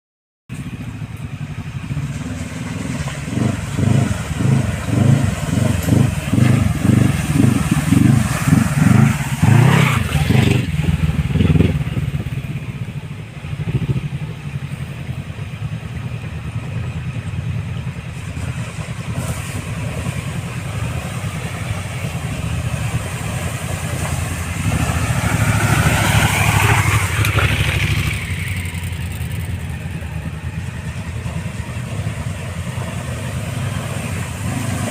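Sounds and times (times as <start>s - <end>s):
dirt bike engine revving: 3.0s - 12.6s, 24.4s - 29.7s.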